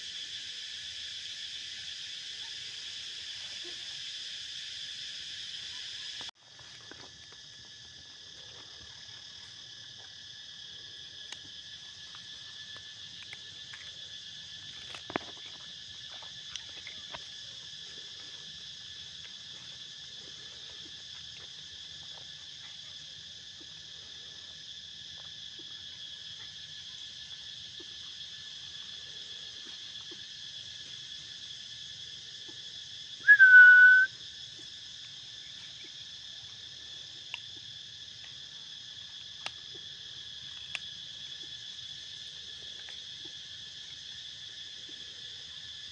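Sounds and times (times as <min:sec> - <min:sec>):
insect chorus drone: 0:00.0 - 0:45.9
loud whistled note: 0:33.3 - 0:34.1.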